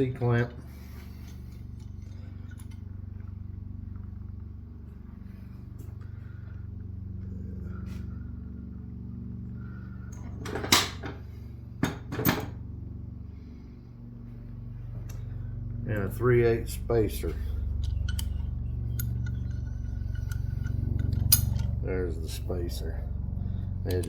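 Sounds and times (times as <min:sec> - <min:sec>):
steady low hum: 0:00.0 - 0:24.0
metal tools being handled: 0:17.8 - 0:21.8.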